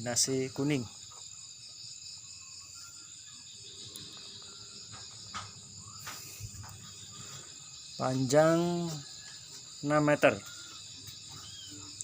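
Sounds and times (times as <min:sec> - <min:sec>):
insects trilling: 0:00.0 - 0:12.0
faint knocks: 0:04.8 - 0:07.0.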